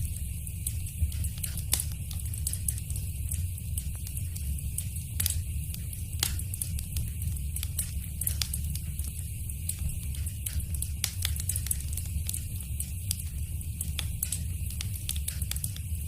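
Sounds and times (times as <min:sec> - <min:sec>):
fireplace fire crackling: 0:00.0 - 0:16.0.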